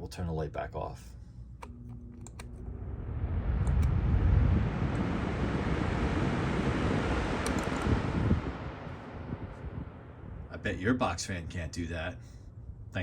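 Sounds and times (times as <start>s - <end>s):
fan air rushing: 0.8s - 13.0s
box fan switch click: 1.6s - 2.5s, 7.4s - 7.9s.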